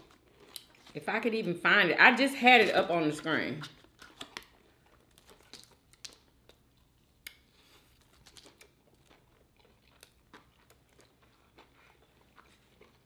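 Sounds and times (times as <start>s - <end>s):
person chewing crispy chicken: 0.0s - 1.0s, 3.8s - 13.0s.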